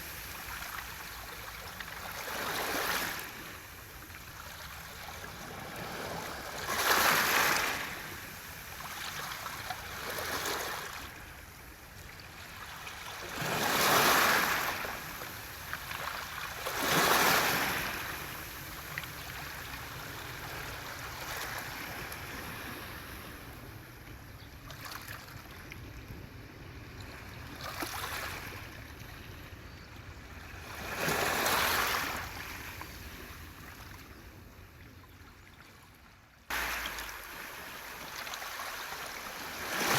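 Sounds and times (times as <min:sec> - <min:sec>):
waves washing over pebbles: 0:04.6 - 0:11.2, 0:12.8 - 0:20.0, 0:36.5 - 0:39.9.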